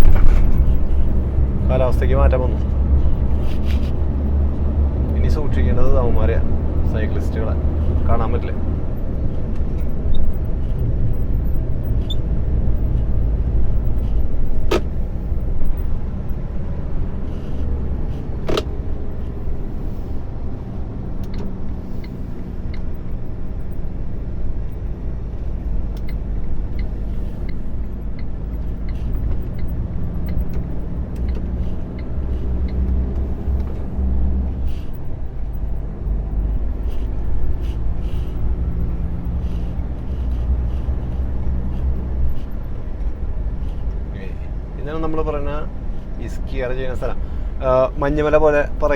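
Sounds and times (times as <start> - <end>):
lorry engine droning: 0.0 - 44.9
road noise: 0.0 - 48.9.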